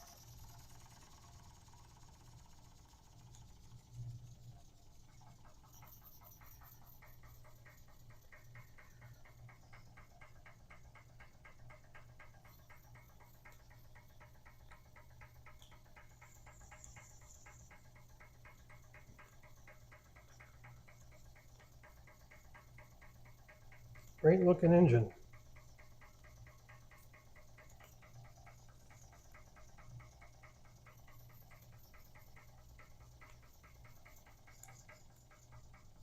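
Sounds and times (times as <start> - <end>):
steady low hum: 0.0 - 36.0
toy steam engine ticking: 0.0 - 36.0.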